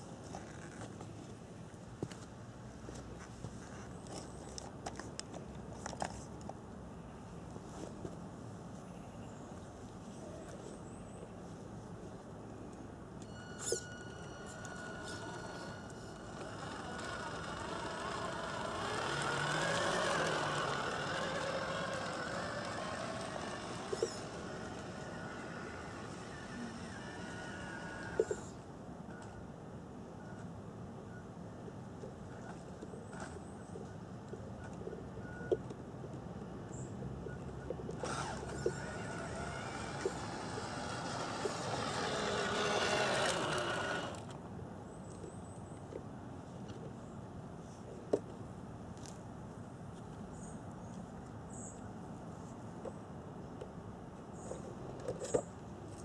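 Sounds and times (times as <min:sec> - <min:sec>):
model truck motor whining: 0:13.2 - 0:28.6, 0:37.9 - 0:44.3.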